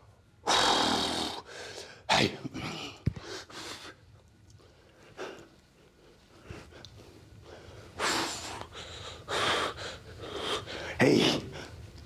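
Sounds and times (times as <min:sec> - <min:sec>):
man breathing hard: 0:07.4 - 0:11.0.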